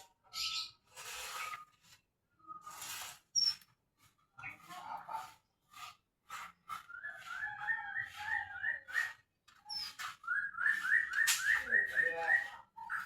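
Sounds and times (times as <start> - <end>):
songbird whistling rising notes: 6.8 - 13.0.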